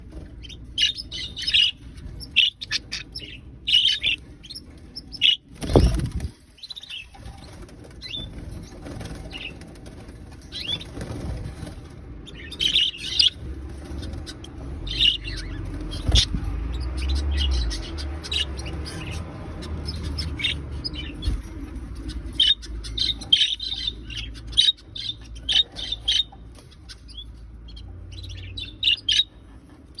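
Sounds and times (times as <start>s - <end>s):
budgerigars chirping and chattering: 0.0s - 30.0s
wing flapping: 5.5s - 6.5s.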